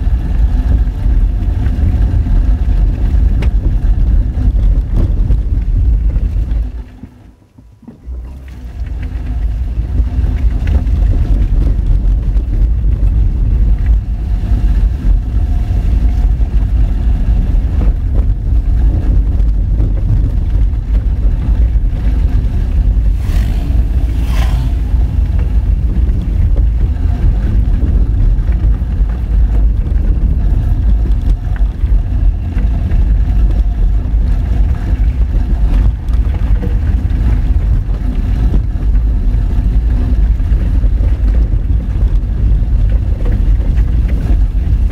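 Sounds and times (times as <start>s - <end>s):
car engine rumble: 0.0s - 44.9s
tyres on loose gravel: 0.0s - 44.9s.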